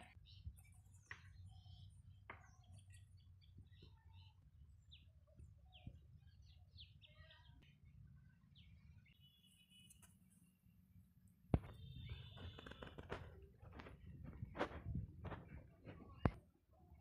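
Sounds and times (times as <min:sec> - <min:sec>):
faint bird chirps: 0:00.0 - 0:10.7, 0:11.6 - 0:13.5.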